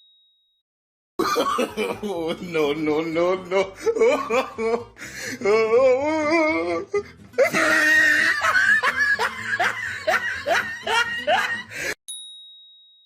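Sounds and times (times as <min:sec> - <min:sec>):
hearty laughter: 0:01.2 - 0:05.4, 0:06.9 - 0:12.0
wobbly voiced sound: 0:05.4 - 0:07.0.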